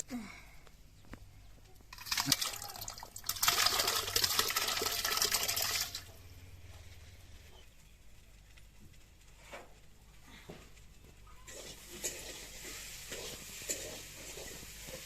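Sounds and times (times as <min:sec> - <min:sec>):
water pouring and splashing: 0:01.9 - 0:06.3, 0:11.4 - 0:15.0.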